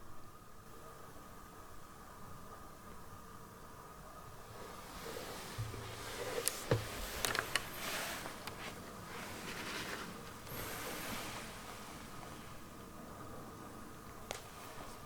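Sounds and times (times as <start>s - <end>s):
faint rustling: 4.3s - 15.0s
light clicks and knocks: 4.5s - 11.8s.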